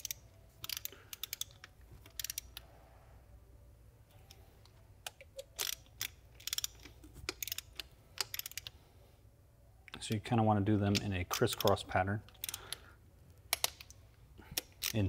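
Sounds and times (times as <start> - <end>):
socket ratchet clicking: 0.0 - 2.6, 5.0 - 8.8, 10.9 - 12.8, 13.4 - 15.0.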